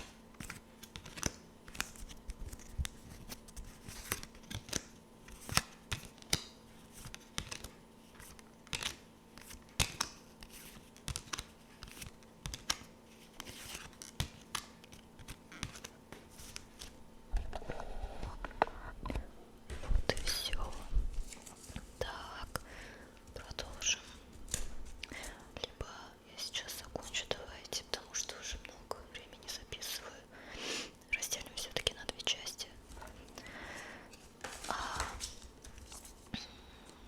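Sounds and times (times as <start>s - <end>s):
cards snapping and flicking: 0.4s - 17.0s
card rustling: 34.1s - 36.3s.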